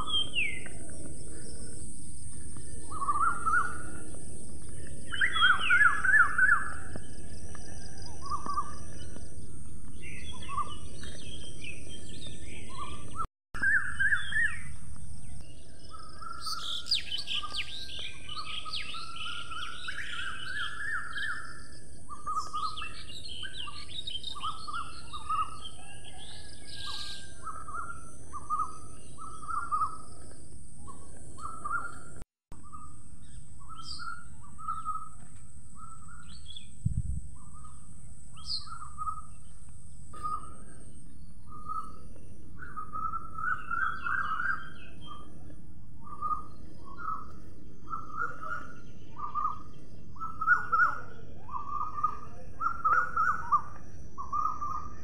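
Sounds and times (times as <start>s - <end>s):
birds chirping: 0.0s - 55.0s
high-pitched bird twittering: 42.6s - 45.3s.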